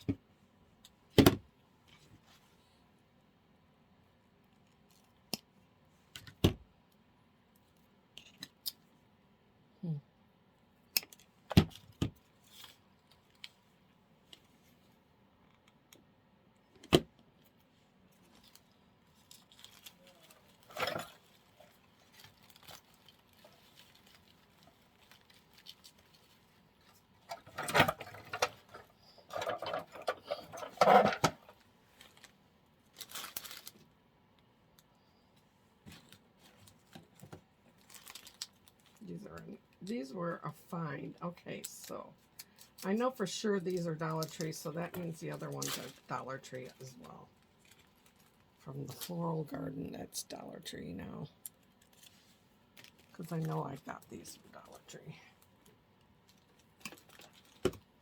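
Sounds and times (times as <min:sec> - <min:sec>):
artificial flower stems rustling: 0:17.4 - 0:34.0, 0:35.2 - 0:58.0.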